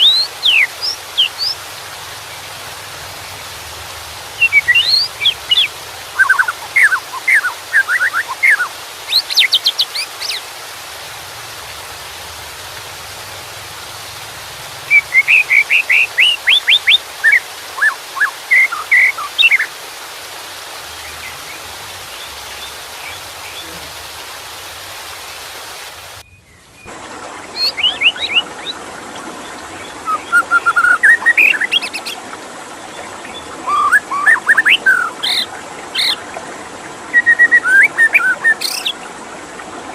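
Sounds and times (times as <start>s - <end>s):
bird singing whistled phrases: 0.0s - 1.6s, 4.4s - 10.4s, 14.9s - 19.7s, 30.0s - 32.2s, 33.2s - 36.2s, 37.1s - 39.0s
running water: 0.0s - 39.9s.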